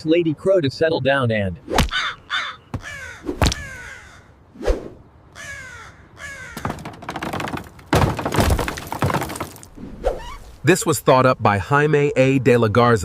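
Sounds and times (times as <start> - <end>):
crow cawing: 1.9 - 4.4, 5.3 - 6.9.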